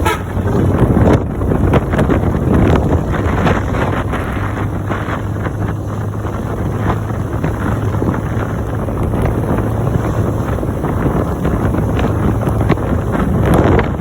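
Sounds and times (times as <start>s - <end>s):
low engine hum: 0.0s - 14.0s
wind buffeting microphone: 0.0s - 14.0s.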